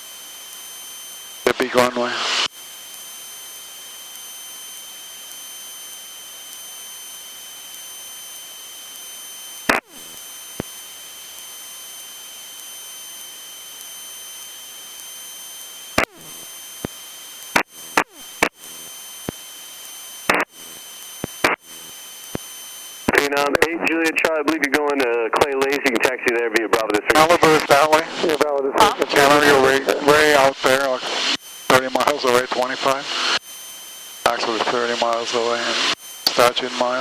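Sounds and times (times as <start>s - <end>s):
thin high whine: 0.0s - 37.0s
headset intercom hiss: 1.5s - 2.5s, 20.2s - 33.4s, 34.2s - 37.0s
sharp clicks: 19.2s - 21.6s, 22.2s - 23.2s.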